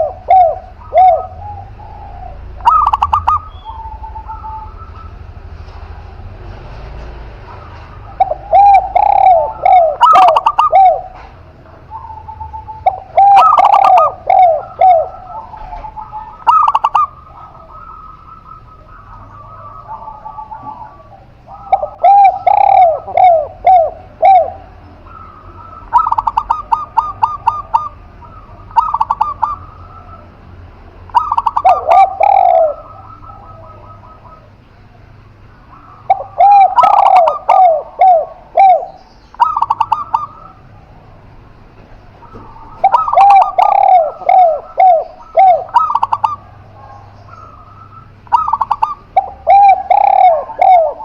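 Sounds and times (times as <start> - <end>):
doves cooing: 0.0 - 51.0.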